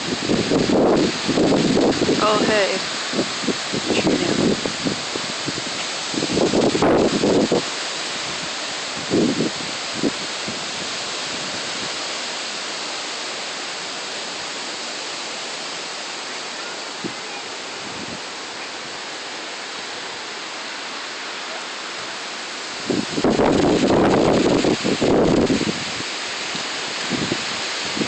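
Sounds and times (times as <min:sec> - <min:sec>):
hurricane wind: 0:00.0 - 0:28.0
rain: 0:00.0 - 0:28.0.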